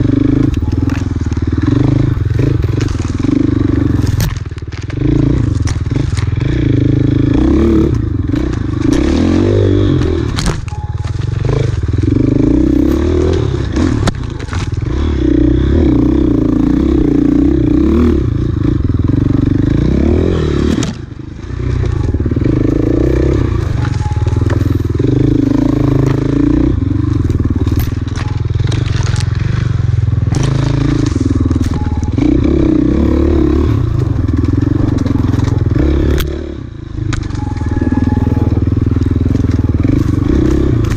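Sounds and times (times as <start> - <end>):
motorcycle engine revving: 0.0 - 40.9
rocks clattering against bike: 0.4 - 15.1, 20.7 - 32.4, 33.6 - 36.3.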